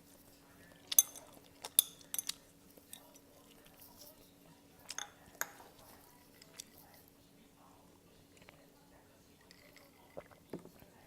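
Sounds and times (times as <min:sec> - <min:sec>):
faint steady hum: 0:00.0 - 0:11.0
utensils clinking against a dish: 0:00.8 - 0:06.9.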